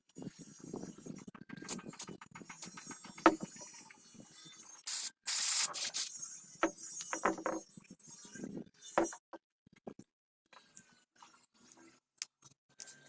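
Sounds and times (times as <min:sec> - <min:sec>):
tools clicking and clinking: 0:01.7 - 0:03.6
spray hissing: 0:04.9 - 0:06.1.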